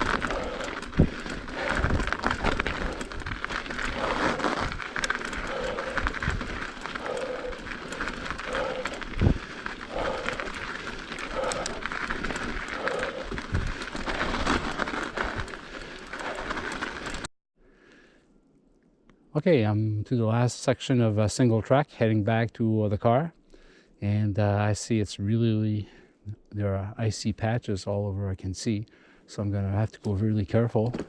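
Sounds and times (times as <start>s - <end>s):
bike rattling: 0.0s - 17.3s
tyres crunching on ice: 0.0s - 17.3s.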